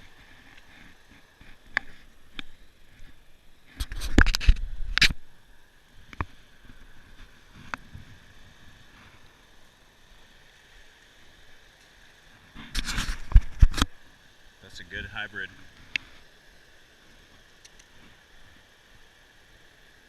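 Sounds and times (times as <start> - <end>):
faint high hum: 0.0 - 20.0
knocks and scrapes: 2.8 - 5.2, 12.6 - 13.9.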